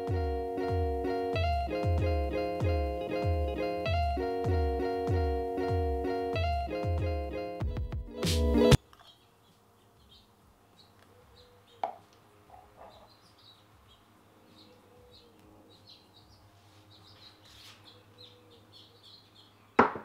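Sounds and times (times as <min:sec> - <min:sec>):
faint bird chirps: 0:09.0 - 0:12.1, 0:12.8 - 0:19.6
knock: 0:19.8 - 0:20.0.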